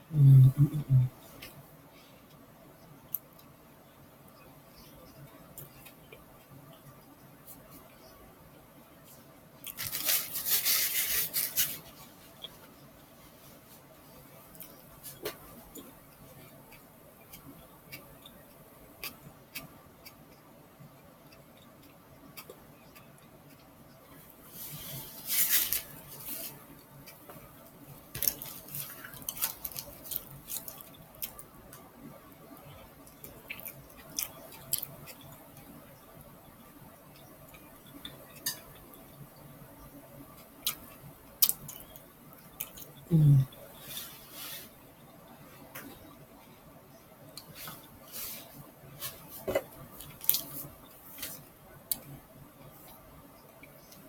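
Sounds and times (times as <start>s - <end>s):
tortilla crackling: 9.6s - 12.8s, 24.5s - 31.5s.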